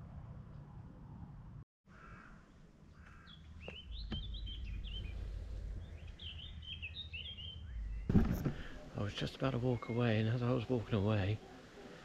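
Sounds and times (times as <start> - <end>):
songbird twittering: 2.9 - 8.1, 8.8 - 10.6
low rumble: 3.5 - 8.7.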